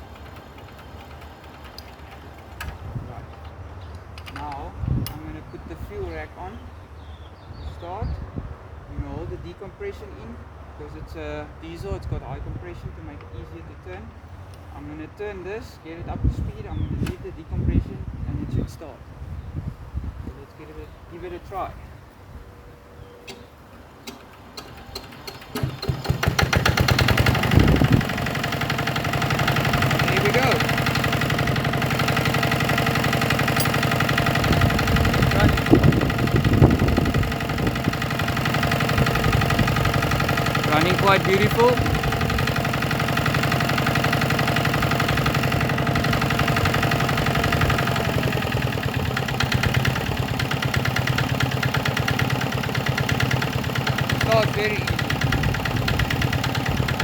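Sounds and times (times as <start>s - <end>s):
light ticks of engine cranking: 0.0s - 7.1s, 12.7s - 15.0s, 15.9s - 18.0s, 23.0s - 57.0s
diesel engine starting and running: 0.0s - 7.7s, 23.0s - 57.0s.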